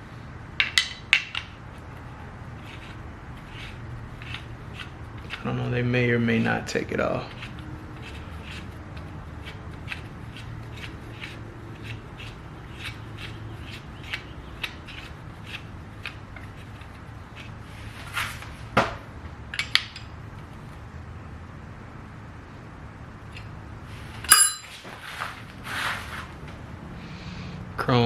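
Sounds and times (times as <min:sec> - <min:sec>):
sharp metal clanks: 0:24.2 - 0:24.8.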